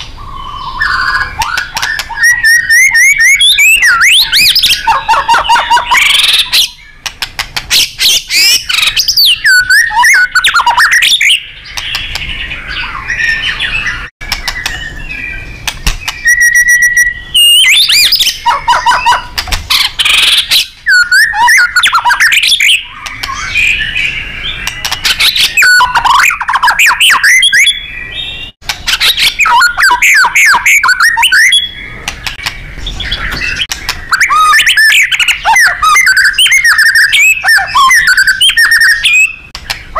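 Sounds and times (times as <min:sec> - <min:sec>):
songbird singing whistled phrases: 0:00.0 - 0:07.1, 0:07.7 - 0:39.9.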